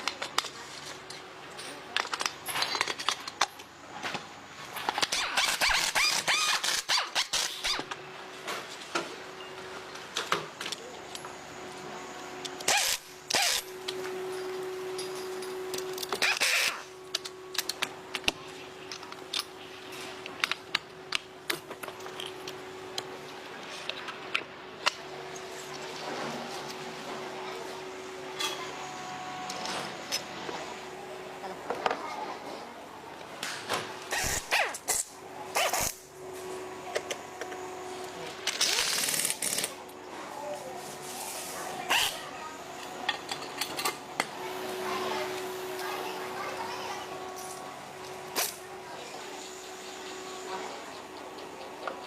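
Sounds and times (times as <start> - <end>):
metal tools clicking and clattering: 43.0 - 44.0.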